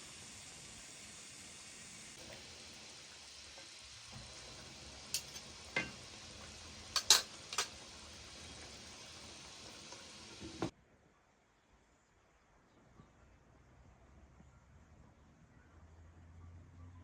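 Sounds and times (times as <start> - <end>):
food sizzling in a pan: 0.0 - 10.7.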